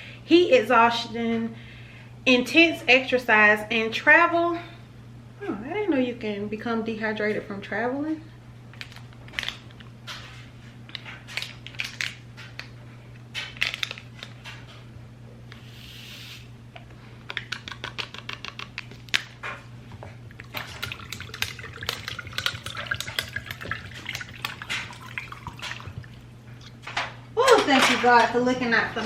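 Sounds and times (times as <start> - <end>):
short hiss: 15.6 - 16.5
ice and glass clinking in jar: 20.4 - 26.1.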